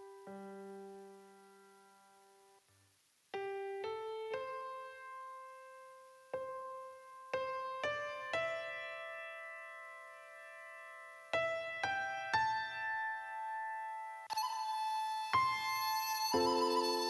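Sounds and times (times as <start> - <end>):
slow solo piano: 0.0 - 2.6, 3.3 - 14.3.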